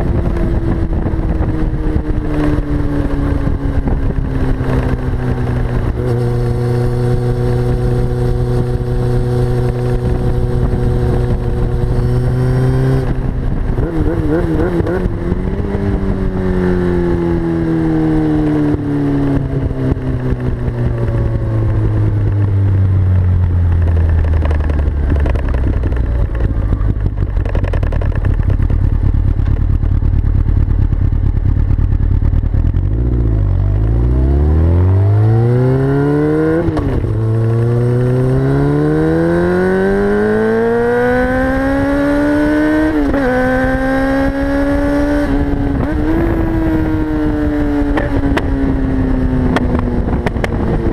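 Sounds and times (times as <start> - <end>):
exhaust popping and crackling: 0.0 - 16.4, 19.4 - 34.0, 36.5 - 38.4, 44.7 - 50.9
motorcycle engine revving: 0.0 - 50.9.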